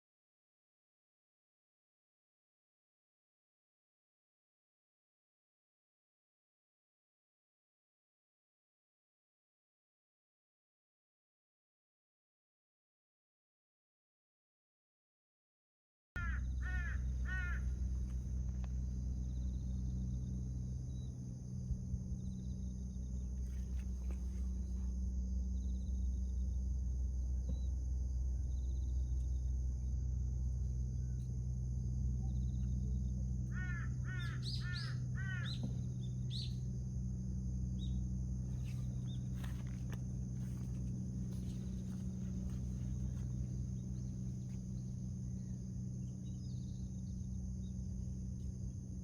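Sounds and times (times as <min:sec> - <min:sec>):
crow cawing: 0:16.2 - 0:18.6, 0:33.5 - 0:35.7
low hum: 0:16.2 - 0:49.0.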